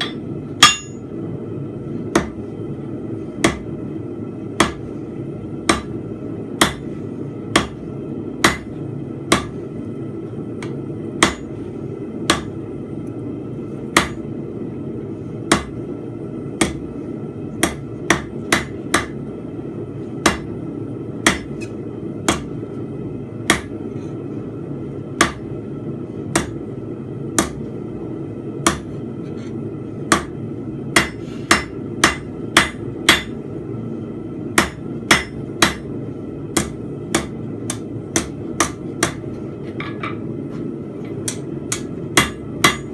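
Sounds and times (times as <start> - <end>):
hammer striking steel on anvil: 0.0 - 1.1, 3.4 - 3.7, 4.6 - 4.8, 5.6 - 6.0, 6.6 - 6.9, 7.5 - 7.8, 8.4 - 9.6, 10.6 - 11.5, 12.3 - 12.6, 14.0 - 14.2, 15.5 - 15.8, 17.6 - 19.2, 20.2 - 20.5, 21.2 - 22.5, 23.4 - 23.8, 25.2 - 25.4, 26.3 - 26.6, 27.4 - 27.6, 28.6 - 28.9, 30.1 - 30.3, 31.0 - 33.4, 34.6 - 35.9, 36.5 - 40.2, 41.2 - 42.9.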